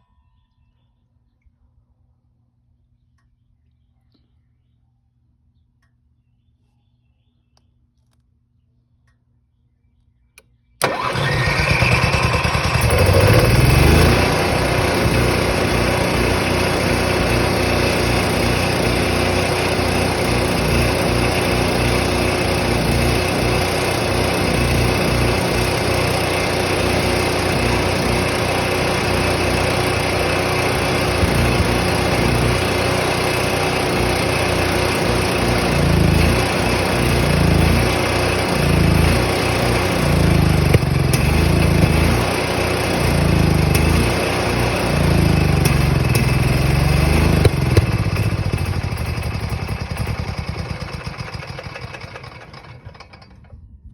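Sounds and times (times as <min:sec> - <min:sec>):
generator engine starting and running: 0:10.8 - 0:53.9.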